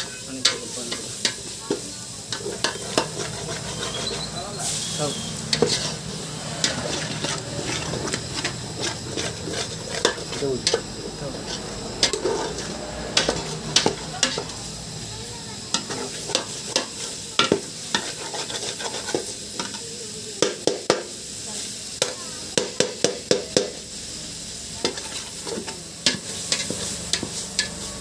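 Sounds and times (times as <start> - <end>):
utensil scraping metal pan: 0.0 - 14.6, 15.7 - 19.8, 24.8 - 27.9
frying sizzle: 0.0 - 28.0.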